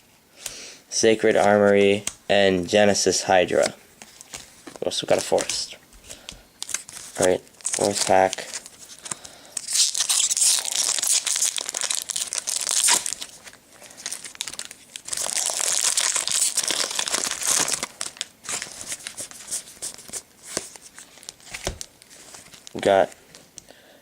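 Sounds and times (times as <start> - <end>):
foil wrapper tearing and crinkling: 6.6 - 20.2.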